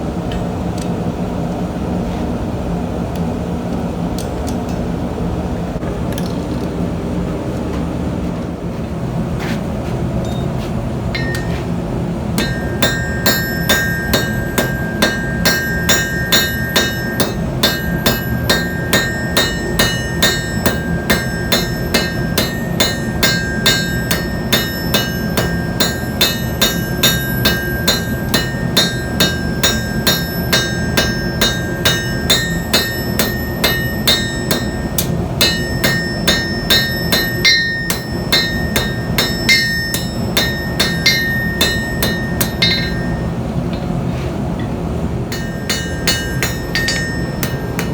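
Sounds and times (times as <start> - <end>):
hammer ringing on anvil: 11.1 - 11.8, 12.4 - 44.0, 44.6 - 47.9.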